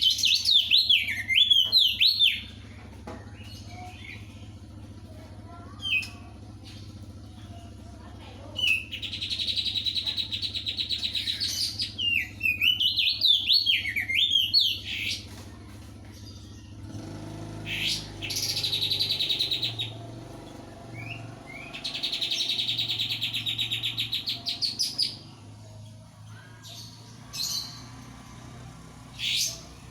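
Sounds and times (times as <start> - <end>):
bird rapid trills: 17.4 - 20.0
bird warbling: 17.6 - 20.0.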